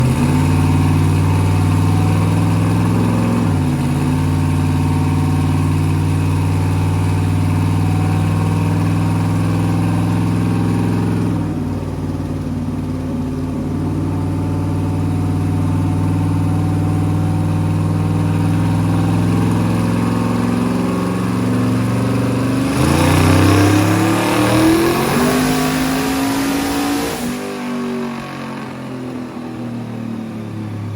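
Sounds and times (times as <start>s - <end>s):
turbocharged engine revving: 0.0s - 29.4s
rush of turbo noise: 16.1s - 28.1s.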